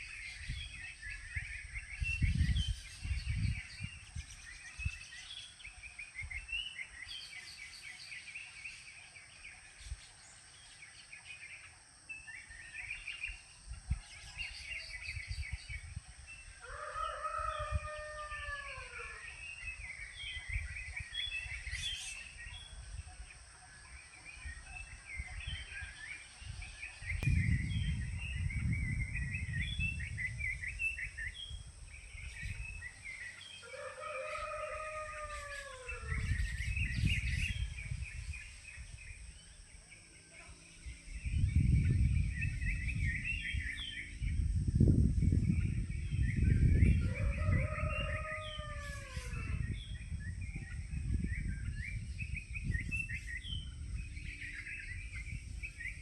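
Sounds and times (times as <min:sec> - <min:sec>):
rooster crowing: 0:16.6 - 0:19.3, 0:33.6 - 0:36.3, 0:46.9 - 0:49.8
small birds chirping: 0:18.8 - 0:56.0.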